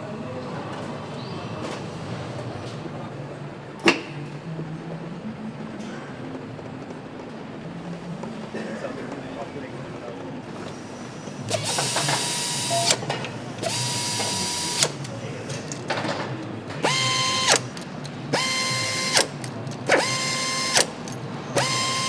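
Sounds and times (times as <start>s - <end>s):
power driver whirring: 11.5s - 15.2s, 16.8s - 22.0s.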